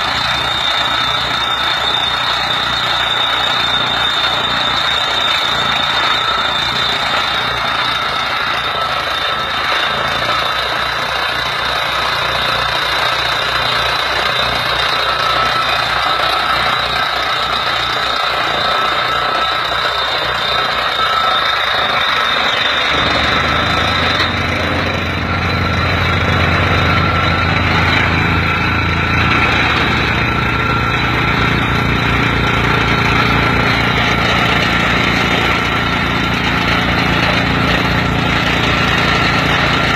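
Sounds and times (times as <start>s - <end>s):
drilling rig tractor engine: 0.0s - 39.9s
high whine: 12.7s - 39.9s.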